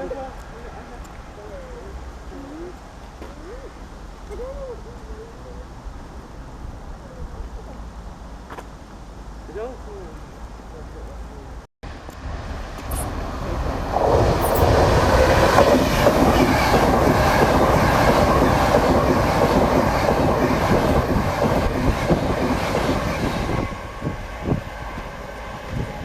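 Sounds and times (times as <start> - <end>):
train passing: 11.9 - 26.0.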